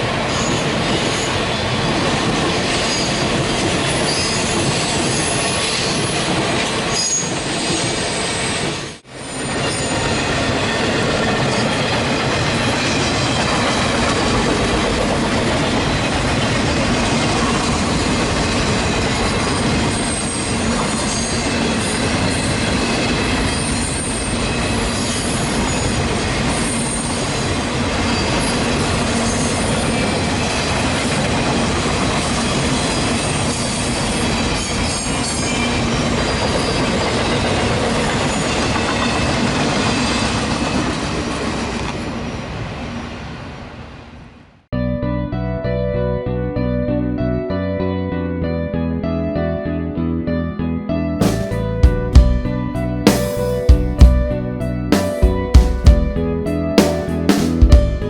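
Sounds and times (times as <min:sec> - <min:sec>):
train cars rolling on rails: 0:00.0 - 0:44.5
high wheel squeal: 0:00.2 - 0:42.4.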